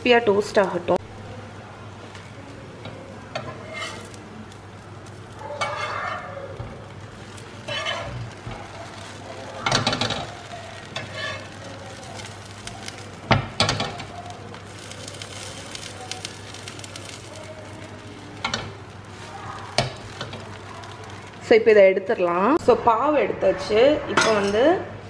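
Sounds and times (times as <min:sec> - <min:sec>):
buns sizzling in butter: 0:00.0 - 0:22.6
metal spatula scraping a pan: 0:03.3 - 0:04.2, 0:05.1 - 0:21.4.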